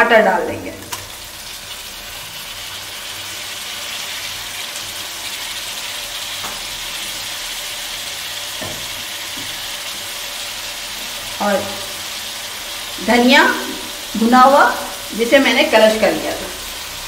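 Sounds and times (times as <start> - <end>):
tomatoes sizzling in oil: 0.2 - 17.0.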